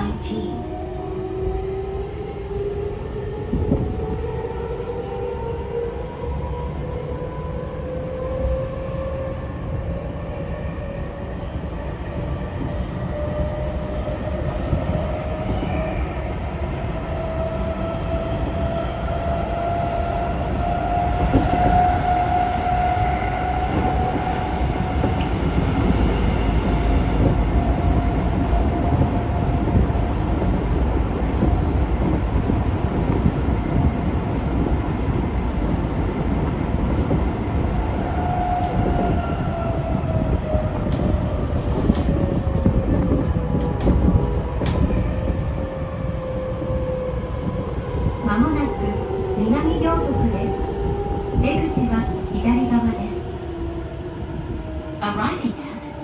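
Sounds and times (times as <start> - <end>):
train rumbling on rails: 0.0 - 56.0
train motors whining: 37.8 - 45.1.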